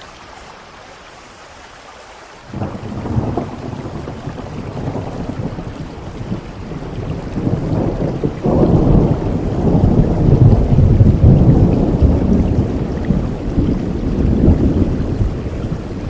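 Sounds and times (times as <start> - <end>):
steady rain: 0.0 - 16.0
rolling thunder: 2.5 - 16.0.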